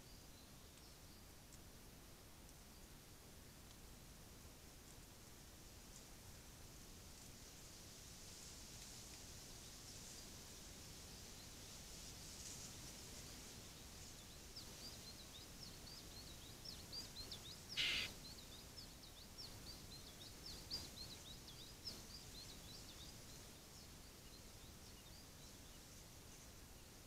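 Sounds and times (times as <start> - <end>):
faint steady hiss: 0.0 - 27.0
songbird chirping: 14.0 - 27.0.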